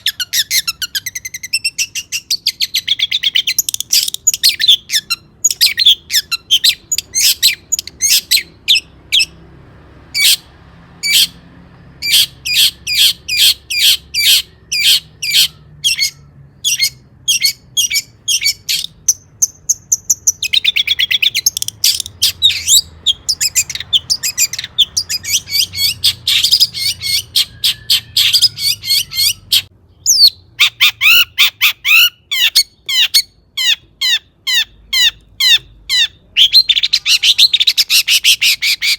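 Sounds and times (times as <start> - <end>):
shrike singing: 10.1 - 38.9.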